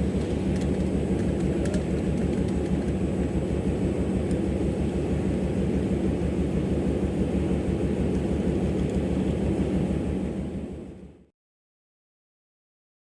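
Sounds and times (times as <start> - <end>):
diesel locomotive engine throbbing: 0.0 - 11.3.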